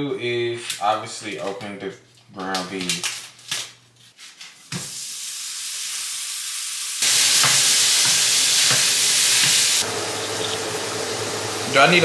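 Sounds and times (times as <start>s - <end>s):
meat sizzling in a pan: 4.8s - 12.0s.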